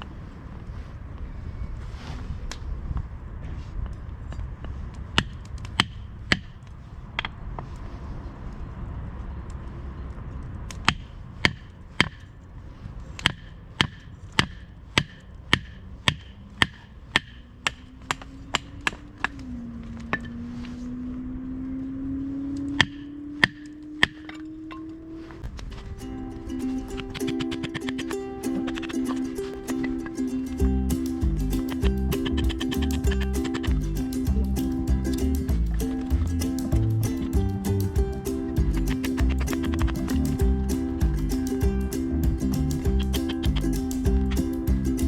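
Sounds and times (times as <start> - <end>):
low tone rising in pitch: 23.0 - 45.0
background music: 26.2 - 45.0.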